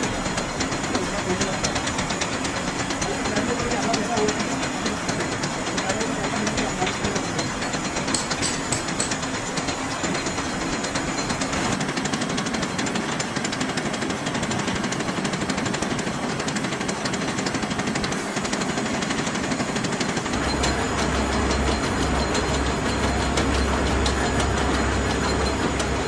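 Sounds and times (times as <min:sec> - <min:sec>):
rapid machine strikes rattling: 0:00.0 - 0:26.0
low hum: 0:20.3 - 0:26.0.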